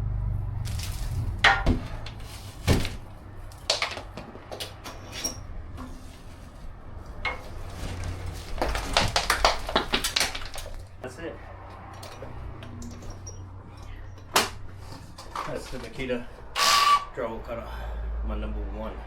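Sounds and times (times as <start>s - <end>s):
hard objects knocking and clacking: 1.4s - 2.9s, 3.6s - 5.0s, 8.3s - 11.0s.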